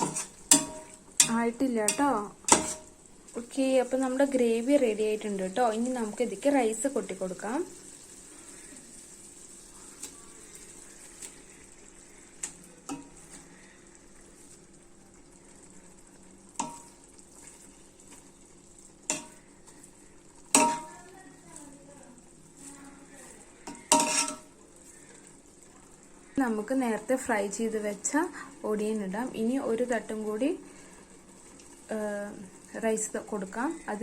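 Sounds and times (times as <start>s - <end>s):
metal spoon clanking against pot: 0.0s - 2.9s, 16.6s - 17.0s, 19.1s - 19.4s, 20.5s - 21.0s, 23.6s - 24.5s
faint steady hiss: 0.0s - 34.0s.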